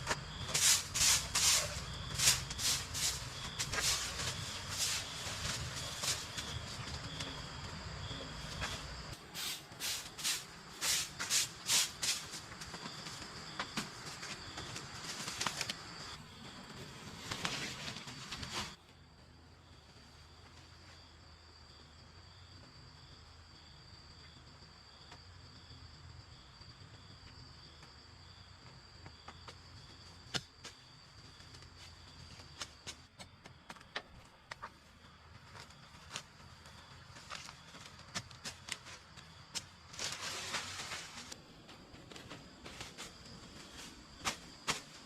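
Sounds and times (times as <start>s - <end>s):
insects trilling: 0.0s - 18.8s.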